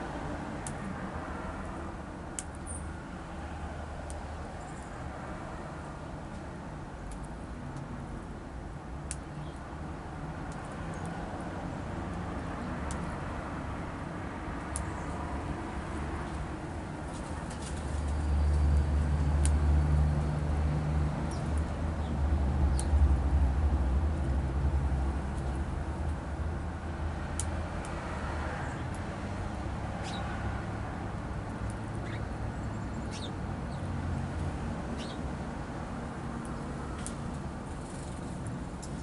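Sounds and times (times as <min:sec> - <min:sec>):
small birds chirping: 0:09.1 - 0:09.7, 0:10.5 - 0:11.3, 0:14.6 - 0:15.4, 0:21.2 - 0:23.0, 0:30.0 - 0:30.4, 0:31.5 - 0:34.2, 0:34.9 - 0:35.3
vehicle passing by: 0:11.2 - 0:31.8.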